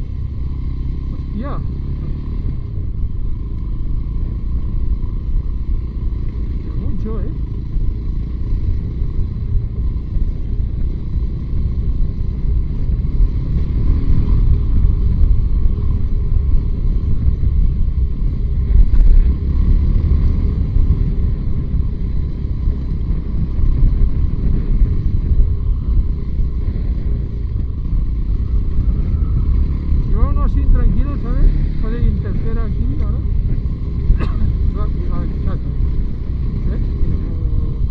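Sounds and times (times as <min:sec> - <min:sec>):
motorcycle engine rumbling: 0:00.0 - 0:37.9.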